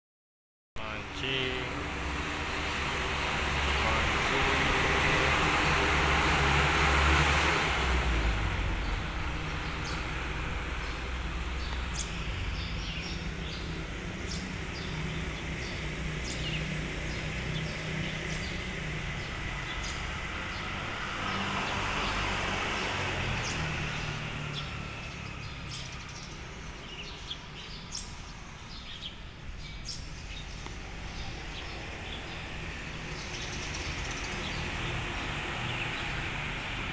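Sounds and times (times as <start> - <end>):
steady low rumble: 7.9 - 15.4.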